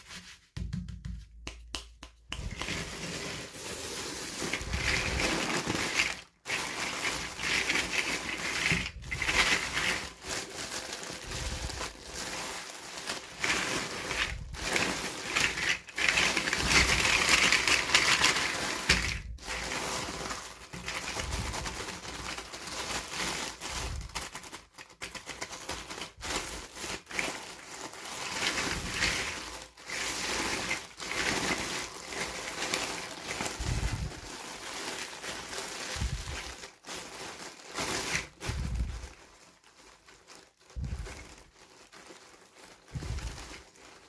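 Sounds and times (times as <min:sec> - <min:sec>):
small clicks and taps: 0:00.6 - 0:02.8
plastic packaging crinkling: 0:02.4 - 0:44.0.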